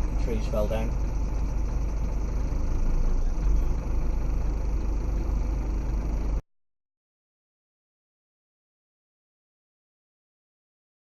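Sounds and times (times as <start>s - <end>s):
diesel truck engine running: 0.0s - 6.4s.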